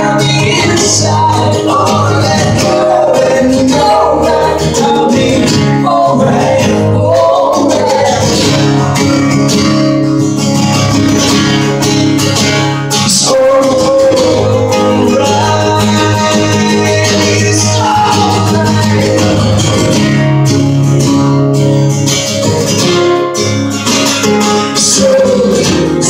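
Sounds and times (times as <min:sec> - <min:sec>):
man singing: 0:00.0 - 0:09.0, 0:12.9 - 0:20.0, 0:24.4 - 0:26.0
strummed acoustic guitar: 0:00.0 - 0:26.0.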